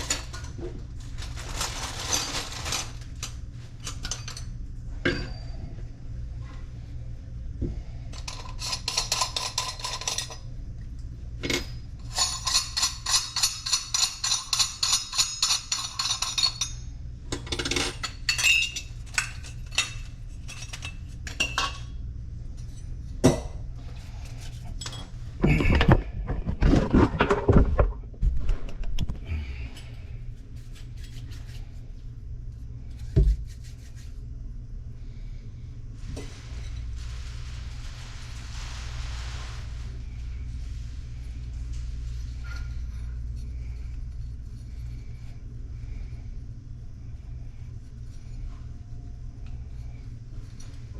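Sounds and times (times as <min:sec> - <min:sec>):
steady low hum: 0:00.0 - 0:50.9
hand tools clinking and rattling: 0:08.2 - 0:10.4, 0:11.4 - 0:21.8.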